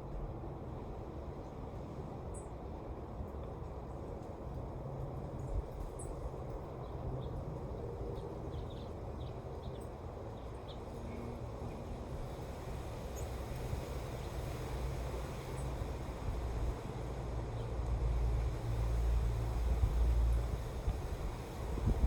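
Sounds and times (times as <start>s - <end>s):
wind rumble on microphone: 3.2s - 22.0s
wind blowing: 19.1s - 22.0s.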